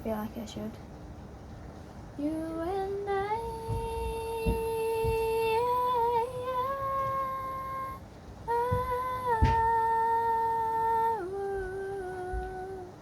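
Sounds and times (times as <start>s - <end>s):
woman humming: 2.2s - 13.0s.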